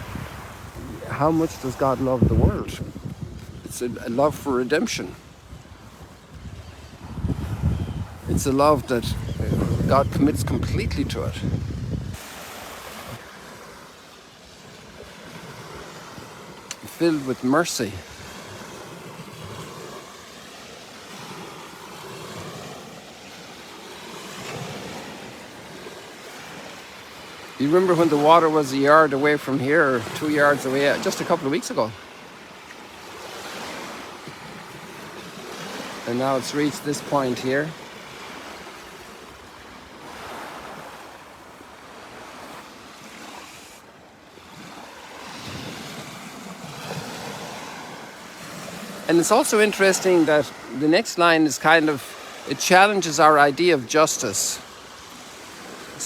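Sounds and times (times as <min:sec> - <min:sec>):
wind on microphone: 0:00.0 - 0:03.7, 0:05.1 - 0:13.2
small waves washing onto shore: 0:00.0 - 0:56.0.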